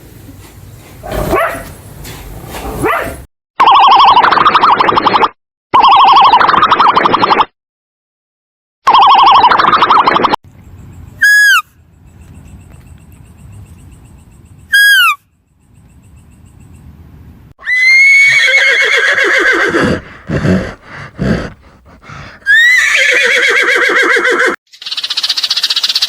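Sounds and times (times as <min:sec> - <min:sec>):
horse whinnying: 0:17.6 - 0:24.6
horse breathing bursts: 0:19.2 - 0:23.3.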